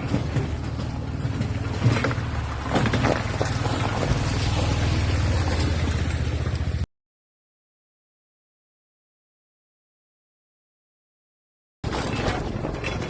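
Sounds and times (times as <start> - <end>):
engine running: 0.0 - 6.9.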